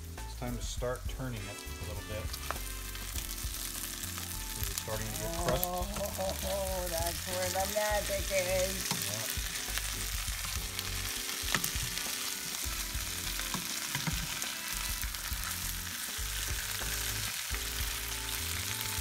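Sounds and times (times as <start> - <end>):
food sizzling in a skillet: 0.0 - 19.0
spatula tapping a pan: 13.4 - 14.4.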